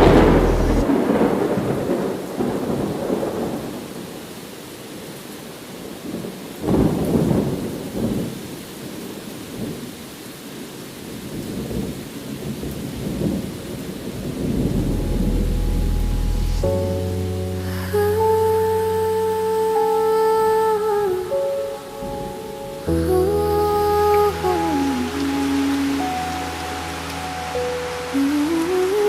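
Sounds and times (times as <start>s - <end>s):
thunder rumbling: 0.0s - 3.9s, 13.0s - 19.7s
steady rain: 0.0s - 29.0s.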